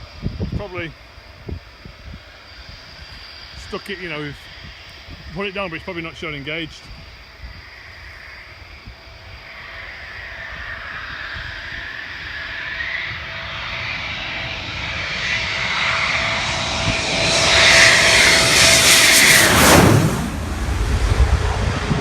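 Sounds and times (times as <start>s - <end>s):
military jet passing by: 0.0s - 22.0s.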